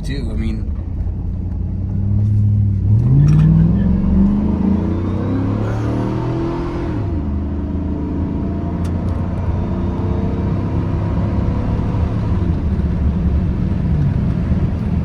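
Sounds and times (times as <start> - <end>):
truck engine pulling: 0.0 - 6.0
tyre and road rumble: 0.0 - 7.0, 9.0 - 15.0.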